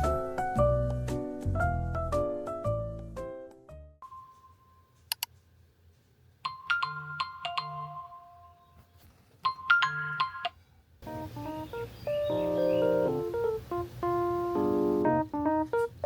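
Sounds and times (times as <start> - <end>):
phone alarm chiming melody: 4.0 - 4.9, 6.5 - 8.8, 9.5 - 10.6.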